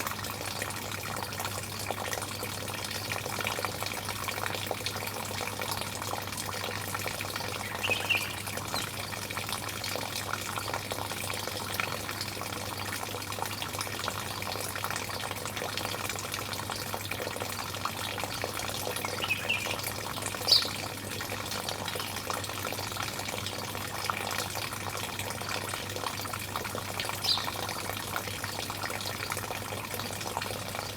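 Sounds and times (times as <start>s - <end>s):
running water splashing: 3.3s - 30.9s
bird chirps: 7.6s - 8.9s, 19.1s - 19.8s, 20.4s - 20.7s, 27.2s - 27.6s.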